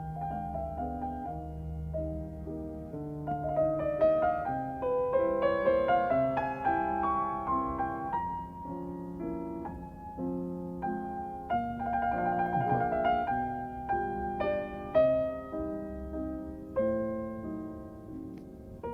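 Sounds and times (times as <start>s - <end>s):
gentle solo piano: 0.0s - 18.9s.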